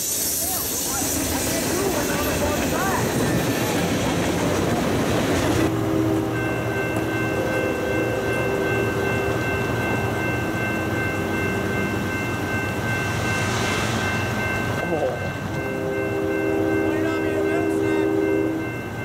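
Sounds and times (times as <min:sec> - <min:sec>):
freight train rumbling: 0:00.0 - 0:19.0
train air horn chord: 0:05.7 - 0:09.0, 0:15.6 - 0:18.8.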